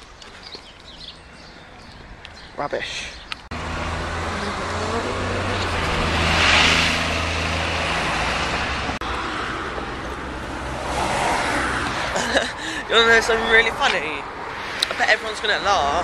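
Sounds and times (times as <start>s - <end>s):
steady traffic noise: 0.0s - 16.0s
car passing by: 3.5s - 12.2s.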